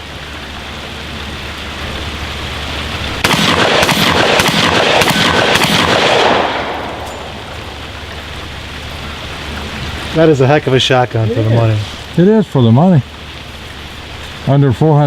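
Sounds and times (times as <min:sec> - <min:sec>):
steady rain hiss: 0:00.0 - 0:15.0
shotgun action cycling: 0:03.2 - 0:07.3
shotgun shots: 0:03.2 - 0:07.4.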